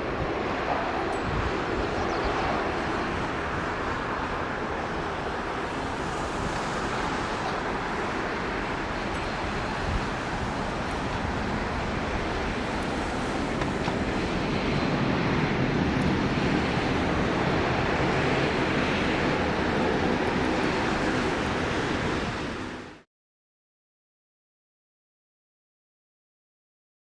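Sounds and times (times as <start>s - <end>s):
wind on microphone: 0.0s - 22.9s
distant jet engines roaring: 0.0s - 23.0s.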